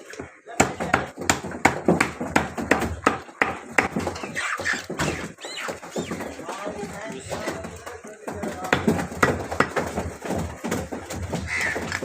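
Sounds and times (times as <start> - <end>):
cleaver chopping on block: 0.6 - 5.2, 8.7 - 12.0.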